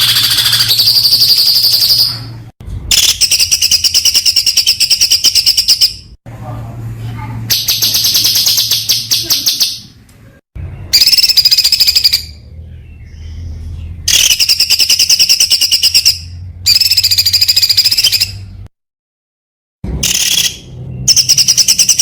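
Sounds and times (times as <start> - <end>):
songbird singing rapid high notes: 0.0 - 2.3, 10.8 - 18.4.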